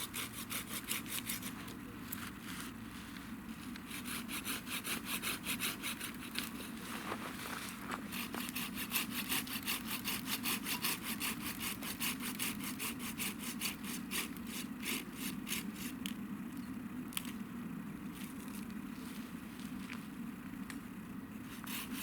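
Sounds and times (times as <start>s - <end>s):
hand saw cutting wood: 0.0s - 1.6s, 3.8s - 6.9s, 7.9s - 15.9s, 21.5s - 22.0s.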